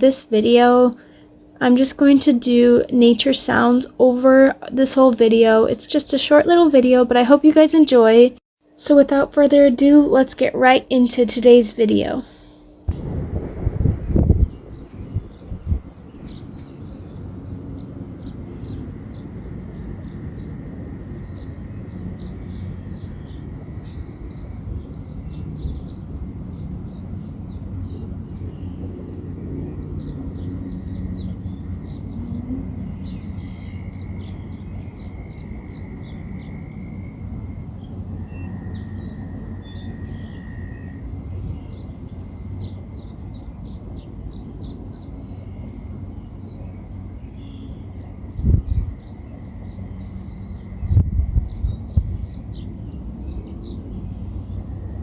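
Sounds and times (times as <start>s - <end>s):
small birds chirping: 0.0s - 55.0s
wind on microphone: 12.9s - 39.6s, 48.2s - 55.0s.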